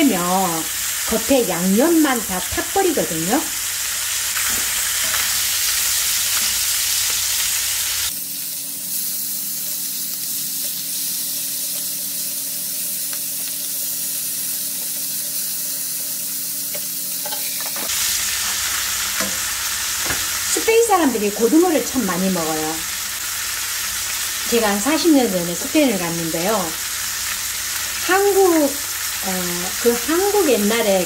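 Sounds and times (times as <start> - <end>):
fish sizzling in oil: 0.0 - 31.0.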